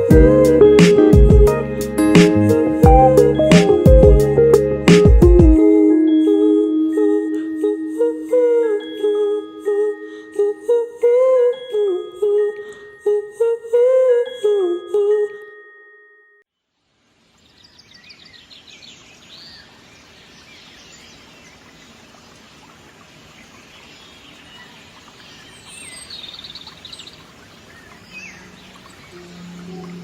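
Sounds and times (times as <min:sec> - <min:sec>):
soft low sustained musical tones: 0:00.0 - 0:04.9, 0:05.6 - 0:13.2, 0:28.1 - 0:30.0
chiming bell-like melody: 0:05.6 - 0:16.5
outdoor background hiss: 0:16.6 - 0:30.0
small birds chirping: 0:17.3 - 0:30.0.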